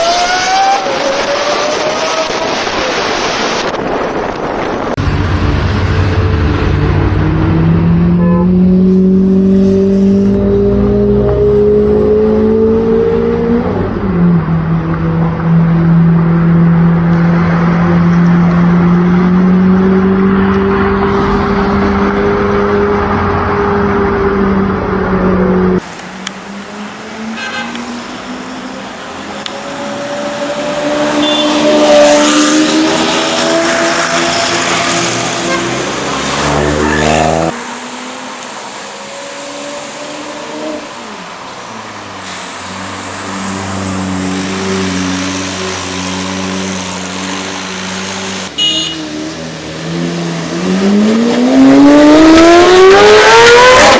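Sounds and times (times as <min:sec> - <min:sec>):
car engine deep drone: 0:05.0 - 0:26.7
sports car engine revving: 0:44.0 - 0:53.9.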